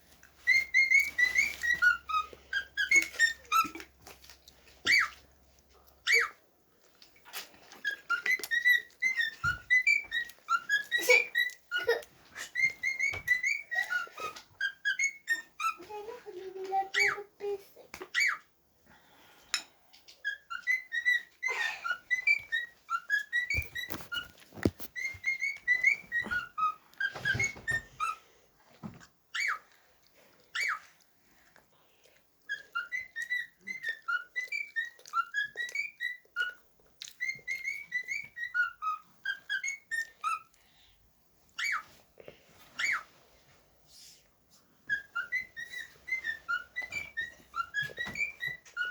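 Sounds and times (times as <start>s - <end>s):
cockatiel whistling: 0.4s - 3.8s, 4.8s - 5.2s, 6.0s - 6.4s, 7.8s - 15.8s, 20.2s - 28.2s, 29.3s - 29.7s, 30.5s - 30.9s, 32.5s - 36.6s, 37.2s - 40.5s, 41.6s - 41.9s, 42.7s - 43.1s, 44.9s - 48.9s.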